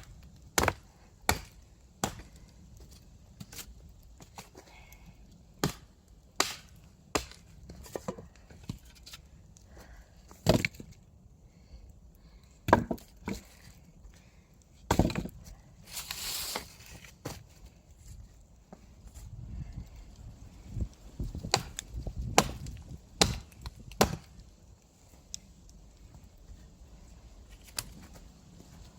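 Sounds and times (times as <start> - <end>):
axe chopping firewood: 0.0 - 4.4, 5.6 - 9.3, 10.3 - 10.9, 12.6 - 13.7, 14.8 - 17.5, 21.3 - 24.4.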